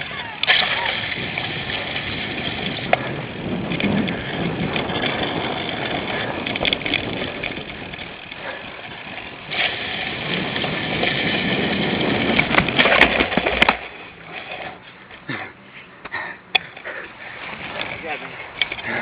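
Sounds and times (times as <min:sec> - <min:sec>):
bike tyres on rough ground: 0:00.0 - 0:19.0.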